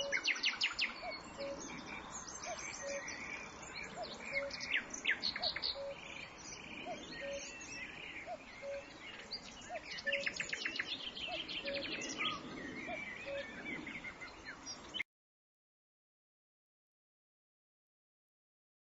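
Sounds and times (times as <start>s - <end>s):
bird trill: 0.0s - 15.0s
songbirds chirping: 0.0s - 15.0s.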